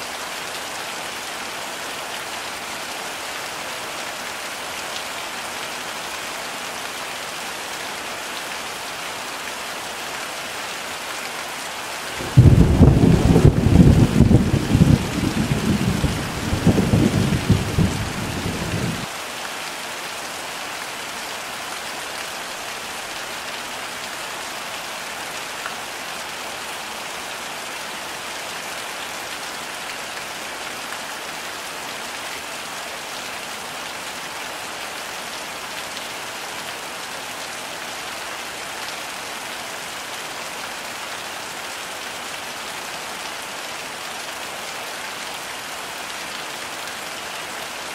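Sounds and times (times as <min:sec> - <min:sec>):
heavy rain falling: 0:00.0 - 0:47.9
thunder rumbling: 0:12.2 - 0:19.1.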